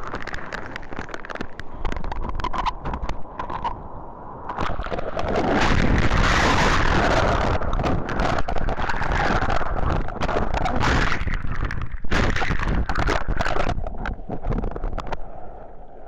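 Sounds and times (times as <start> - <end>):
rushing wind: 0.0 - 15.4
wind buffeting microphone: 1.8 - 15.2
surf breaking: 4.4 - 15.3.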